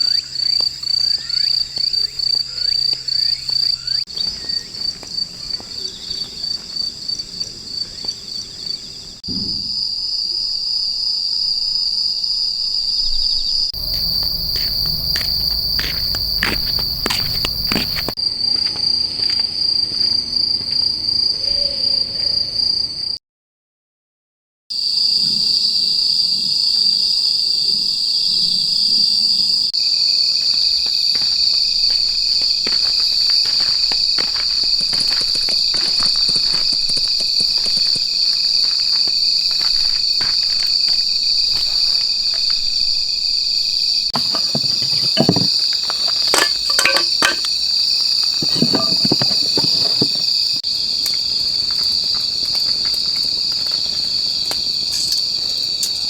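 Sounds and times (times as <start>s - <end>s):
insects chirping: 0.0s - 23.2s, 24.7s - 56.0s
clicks and knocks: 44.2s - 47.5s, 48.4s - 50.3s.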